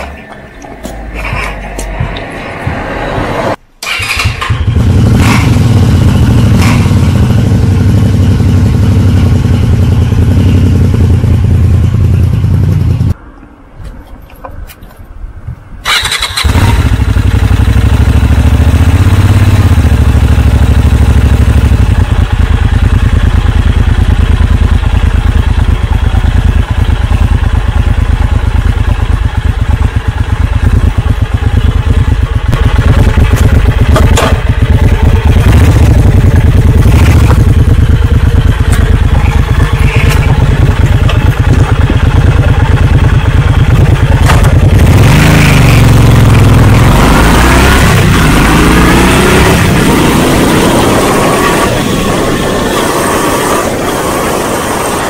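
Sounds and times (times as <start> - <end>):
motorcycle engine idling: 3.9 - 13.2, 15.9 - 46.7.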